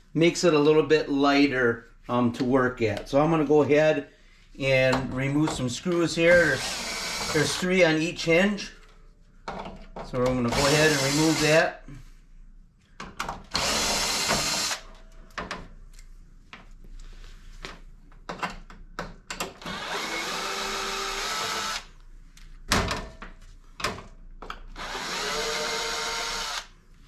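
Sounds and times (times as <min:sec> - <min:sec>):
electric drill motor: 0:06.3 - 0:07.6, 0:10.5 - 0:11.6, 0:13.5 - 0:14.9, 0:19.6 - 0:21.9, 0:24.8 - 0:26.7.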